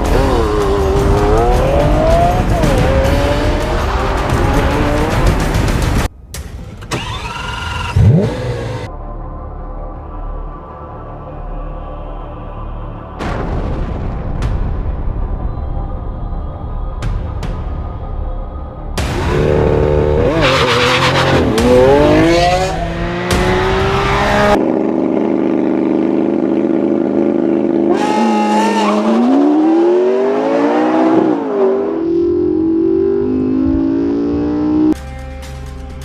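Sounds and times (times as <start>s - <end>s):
sports car engine accelerating: 0.0s - 5.7s, 7.0s - 8.9s, 19.2s - 35.0s.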